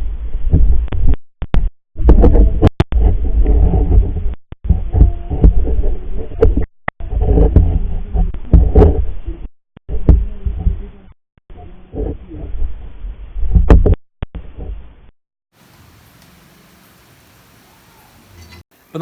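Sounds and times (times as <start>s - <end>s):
muffled underwater rumbling and knocking: 0.0s - 15.1s.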